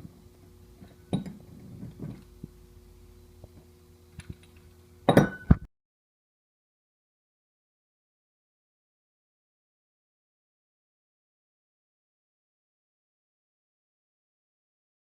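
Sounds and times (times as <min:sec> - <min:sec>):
faint mechanical hum: 0:00.0 - 0:05.7
knocks and clinks: 0:05.1 - 0:05.7.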